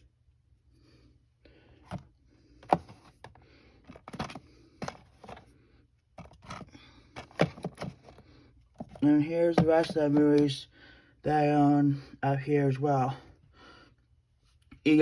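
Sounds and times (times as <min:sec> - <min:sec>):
plastic cases clicking and knocking: 0:02.6 - 0:05.4, 0:06.2 - 0:10.6.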